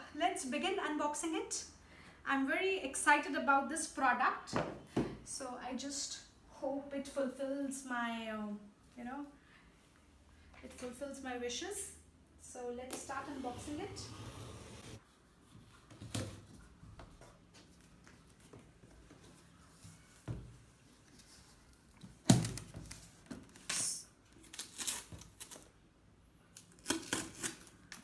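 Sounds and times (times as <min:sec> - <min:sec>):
cardboard tearing: 0:26.7 - 0:27.9.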